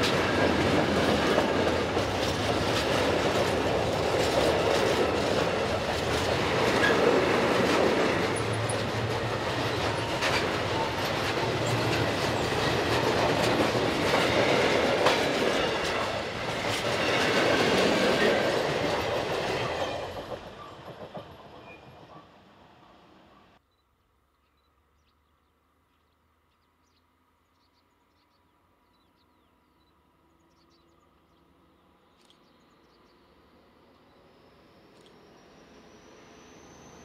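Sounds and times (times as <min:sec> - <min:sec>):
freight train rumbling past: 0:00.0 - 0:23.6.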